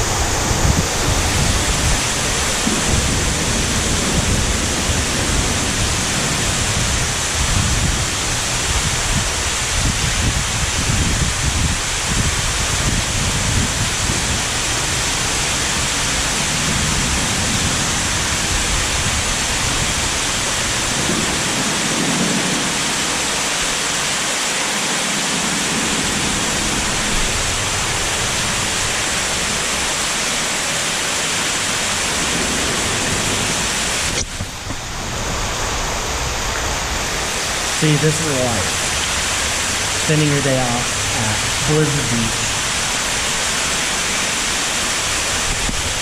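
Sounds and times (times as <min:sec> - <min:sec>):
water rushing and splashing: 0:00.0 - 0:46.0.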